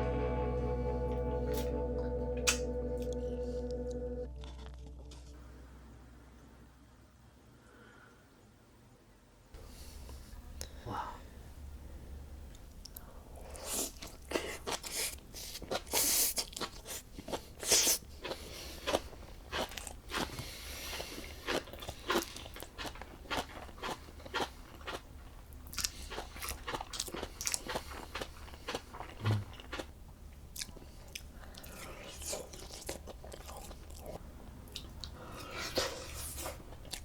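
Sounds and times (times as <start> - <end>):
person chewing crunchy food: 13.4 - 37.0.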